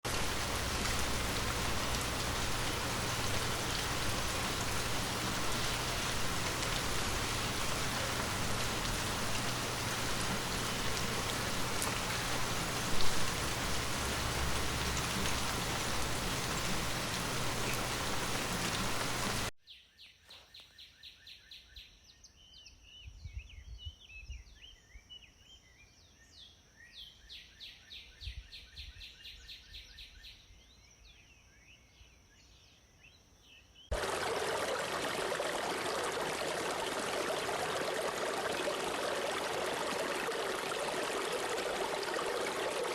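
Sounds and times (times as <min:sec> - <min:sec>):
rush of falling water: 0:00.0 - 0:19.5, 0:33.9 - 0:42.9.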